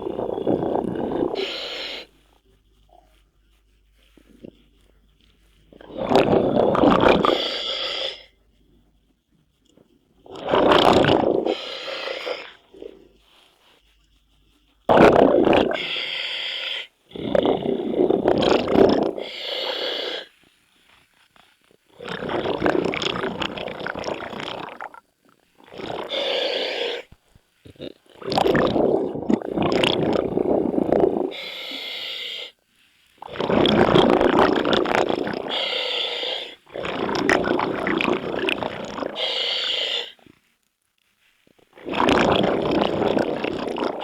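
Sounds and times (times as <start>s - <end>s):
exhaled bubbles gushing: 0.0s - 2.1s, 5.7s - 7.6s, 10.2s - 13.1s, 14.9s - 16.1s, 17.1s - 19.4s, 21.9s - 31.5s, 33.2s - 35.8s, 36.6s - 40.2s, 41.6s - 44.0s
regulator hissing inhale: 0.0s - 2.4s, 7.2s - 8.4s, 11.4s - 12.8s, 15.8s - 18.2s, 19.2s - 20.4s, 26.1s - 27.2s, 30.3s - 32.6s, 35.4s - 36.7s, 39.1s - 40.3s.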